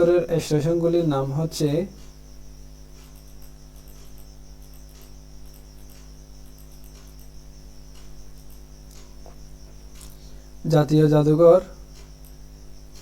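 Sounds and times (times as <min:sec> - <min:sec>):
steady low hum: 0:00.0 - 0:13.0
faint ticks: 0:02.8 - 0:10.4, 0:11.8 - 0:13.0.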